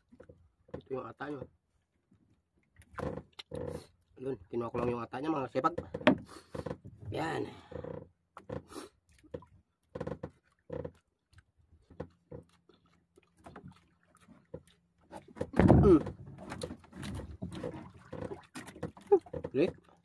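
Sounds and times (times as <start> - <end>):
man chewing: 10.4 - 15.3.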